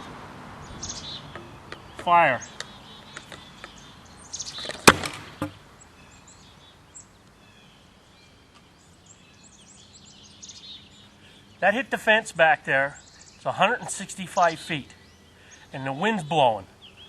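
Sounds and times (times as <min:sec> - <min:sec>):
birds chirping faintly: 0:00.0 - 0:17.0
sharp loud pop of mortar: 0:04.8 - 0:05.5.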